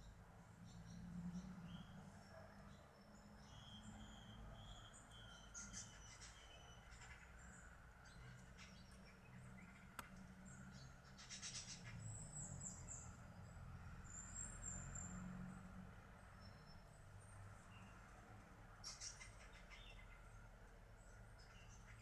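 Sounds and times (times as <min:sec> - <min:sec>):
high bird chirps and calls: 0:11.1 - 0:13.1, 0:18.8 - 0:20.2.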